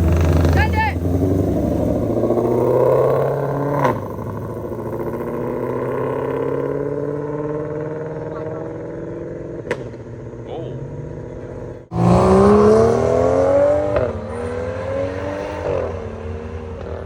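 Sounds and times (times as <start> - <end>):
car engine accelerating hard: 0.0 - 17.0
sharp engine pop: 9.6 - 10.0.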